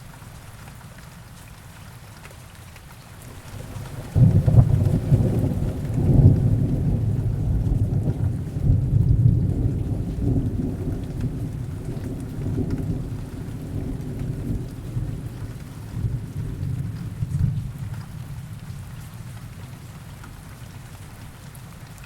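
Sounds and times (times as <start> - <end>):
steady rain: 0.0 - 22.0
rolling thunder rumble: 3.3 - 19.7.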